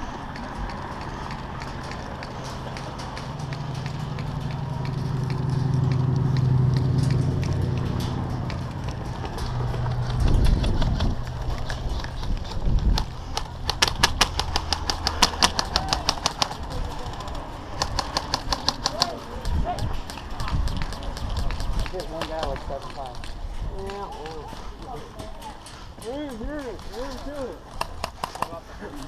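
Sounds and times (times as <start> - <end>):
low engine-like hum: 0.0 - 21.2.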